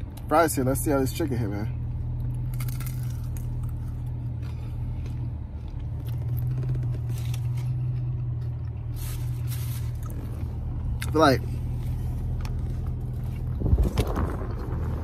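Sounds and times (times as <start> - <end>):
steady low hum: 0.0 - 15.0
chewing crunchy chicken wings: 2.2 - 10.2.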